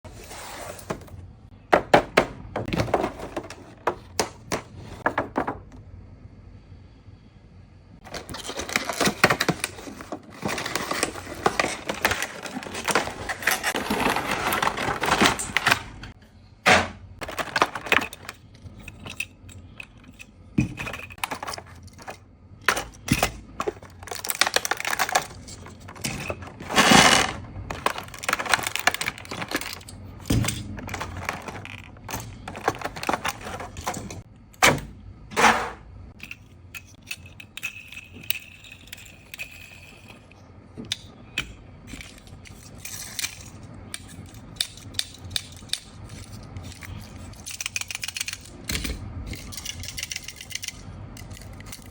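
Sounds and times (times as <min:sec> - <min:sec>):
packaging crinkling and rustling: 0:08.0 - 0:16.2, 0:17.2 - 0:18.8, 0:22.8 - 0:34.3
clicks of small hard pieces: 0:40.9 - 0:51.9.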